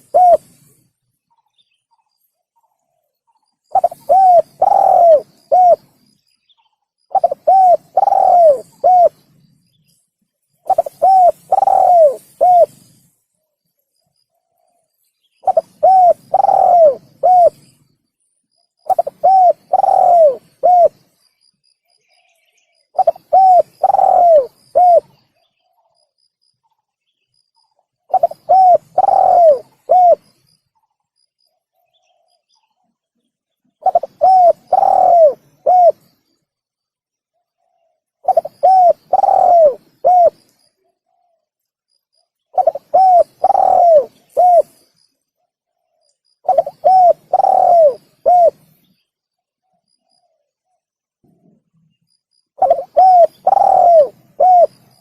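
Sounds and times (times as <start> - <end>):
dove cooing: 0.0 - 0.7, 3.7 - 6.1, 7.1 - 9.3, 10.6 - 12.9, 15.4 - 17.6, 18.8 - 21.0, 22.9 - 25.2, 28.1 - 30.3, 33.8 - 36.1, 37.6 - 40.5, 42.5 - 44.8, 46.4 - 48.7, 52.6 - 55.0.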